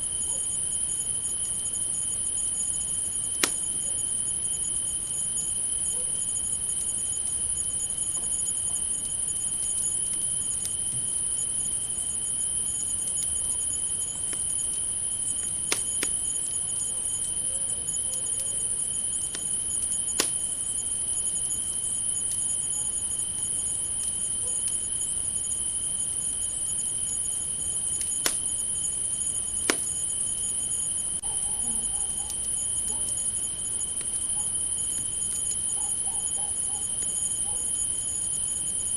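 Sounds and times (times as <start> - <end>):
crickets trilling: 0.0 - 38.9
campfire crackling: 1.8 - 4.6, 7.2 - 17.3, 18.9 - 22.7, 23.3 - 30.7, 32.3 - 35.7
campfire pops: 3.3 - 3.9, 15.4 - 16.3, 19.2 - 20.6, 27.9 - 28.6, 29.6 - 30.0.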